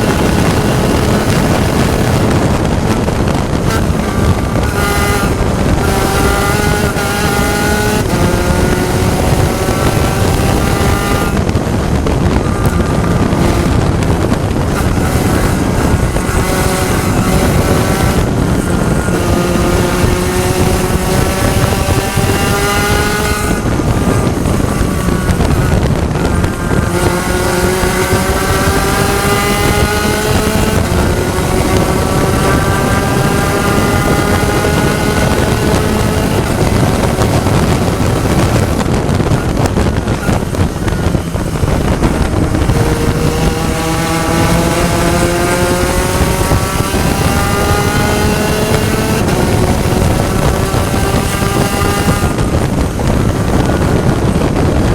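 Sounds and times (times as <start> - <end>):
race car engine revving: 0.0 - 54.9
wind noise on microphone: 0.0 - 54.9.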